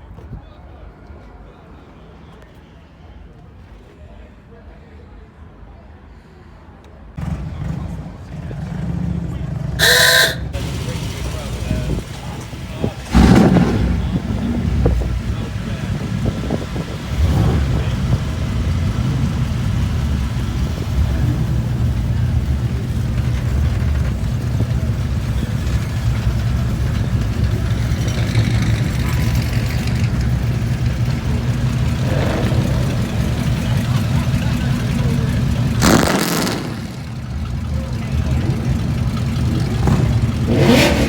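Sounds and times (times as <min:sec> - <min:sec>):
car engine running: 0:09.8 - 0:41.0.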